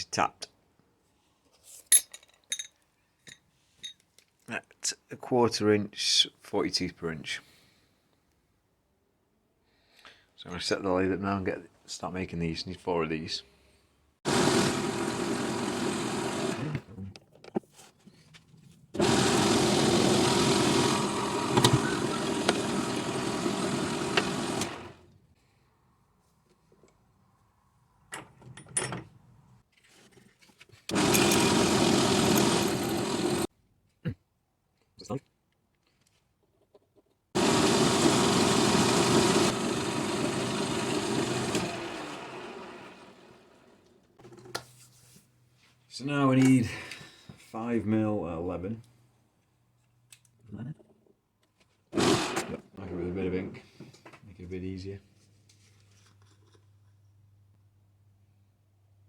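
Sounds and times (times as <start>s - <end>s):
metal lathe motor running: 14.3s - 16.8s, 19.0s - 25.0s, 30.9s - 33.5s, 37.4s - 43.2s.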